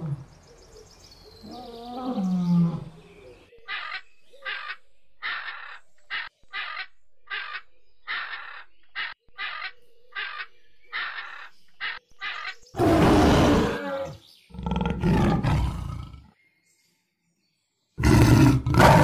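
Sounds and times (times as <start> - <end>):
bird harsh crow-like calls: 3.6 - 14.3
large animal roaring: 12.8 - 16.3, 18.0 - 19.0.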